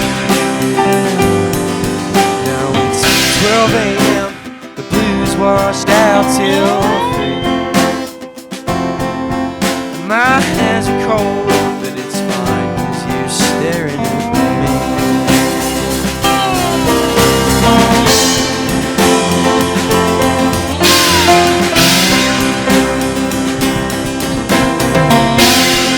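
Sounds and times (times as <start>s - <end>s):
bending lead guitar line: 0.0s - 25.9s
country band with guitars: 0.0s - 25.9s
strummed guitar chords: 0.0s - 25.9s.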